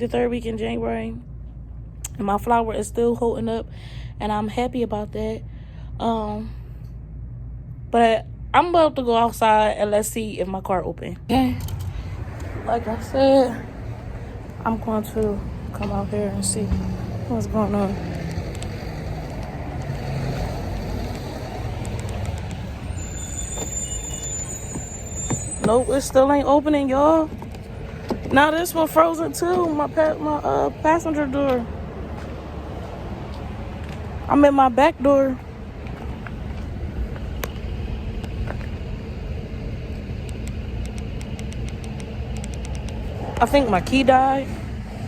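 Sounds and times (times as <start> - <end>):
road traffic rumble: 0.0 - 45.0.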